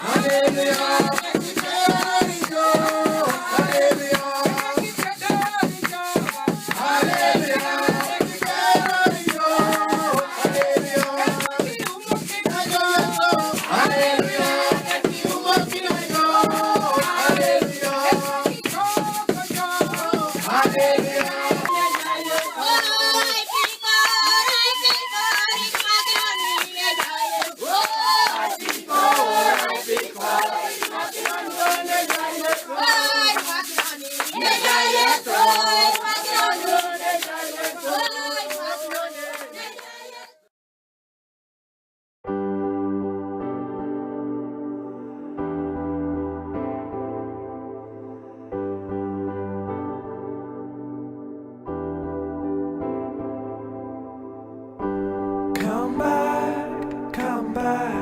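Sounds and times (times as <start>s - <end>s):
shaker rattle: 0.0s - 40.2s
congregation singing in unison: 0.0s - 40.4s, 55.6s - 58.0s
rhythmic hand-clapping: 0.0s - 40.4s, 55.6s - 58.0s.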